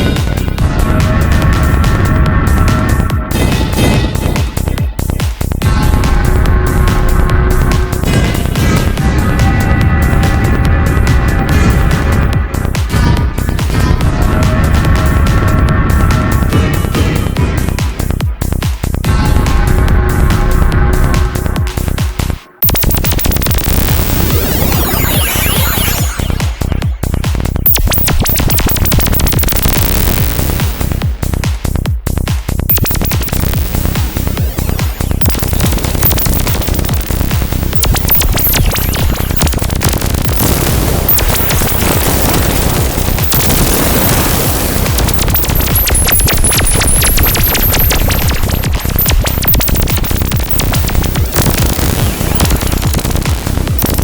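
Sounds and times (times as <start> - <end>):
synthesizer clicks and pulses: 19.0 - 31.4, 32.5 - 54.0
falling synth bass sweeps: 19.1 - 31.1, 32.7 - 54.0.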